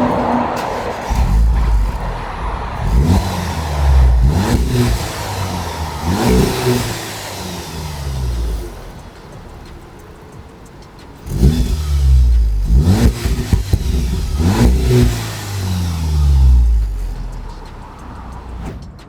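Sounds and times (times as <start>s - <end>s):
car engine revving: 0.0s - 18.8s.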